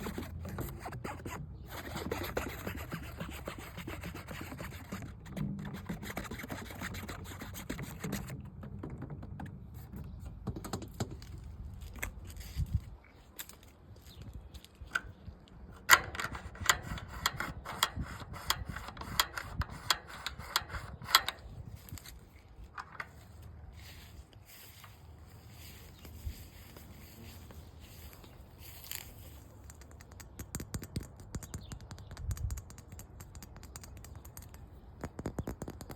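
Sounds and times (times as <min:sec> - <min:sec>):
scratching on hard surface: 0:00.0 - 0:12.9.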